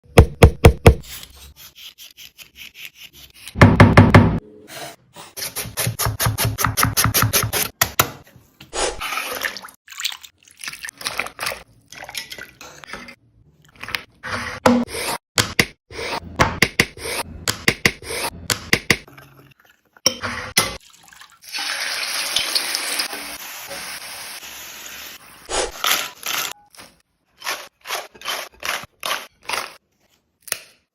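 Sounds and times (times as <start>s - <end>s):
water: 8.9s - 12.9s, 19.1s - 22.0s.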